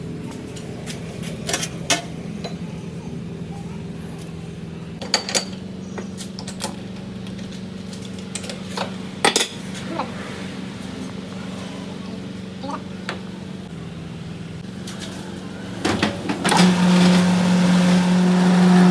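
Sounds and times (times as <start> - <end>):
steady machine hum: 9.9 - 18.9.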